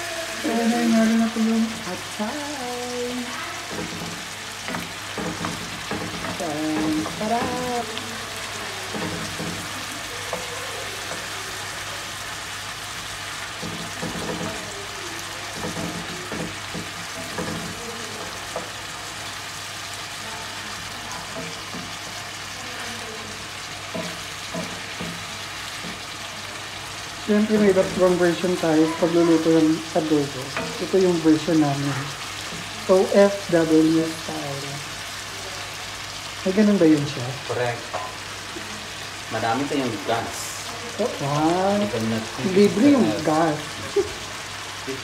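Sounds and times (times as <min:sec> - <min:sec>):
meat sizzling in a skillet: 0:00.0 - 0:45.0
wooden spoon stirring: 0:03.2 - 0:20.2, 0:20.8 - 0:32.9.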